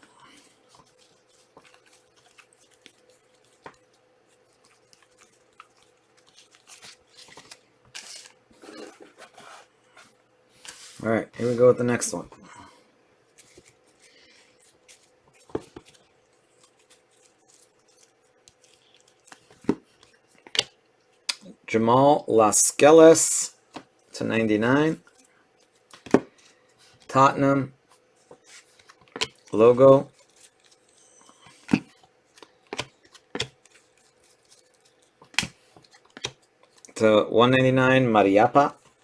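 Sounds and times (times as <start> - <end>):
cards rustling: 0.2 - 12.2, 28.2 - 37.0
card pack rustling: 0.5 - 10.0.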